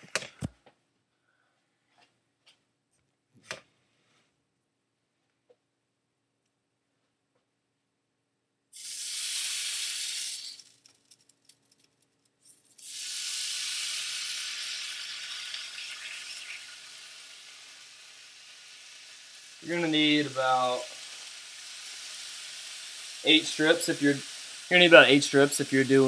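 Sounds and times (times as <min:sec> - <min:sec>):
bacon sizzling in a skillet: 0:08.8 - 0:10.9, 0:12.8 - 0:26.0.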